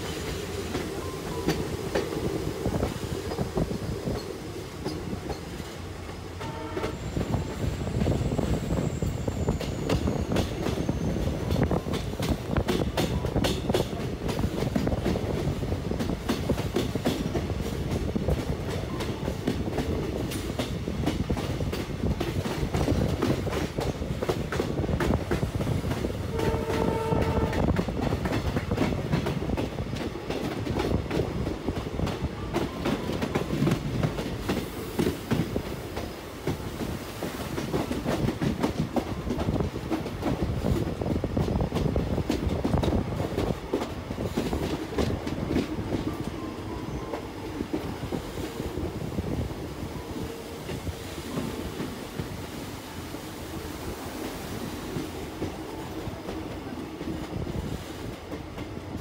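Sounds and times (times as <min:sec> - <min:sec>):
train horn blast: 0:06.4 - 0:07.3, 0:26.3 - 0:27.8
train wheels clattering over rail joints: 0:08.7 - 0:46.4.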